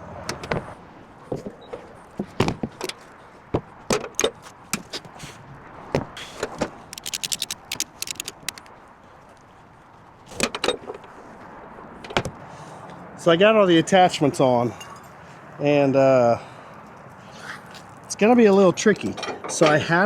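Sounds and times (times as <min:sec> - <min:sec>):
metal gear clicking and rattling: 0:06.9 - 0:08.7.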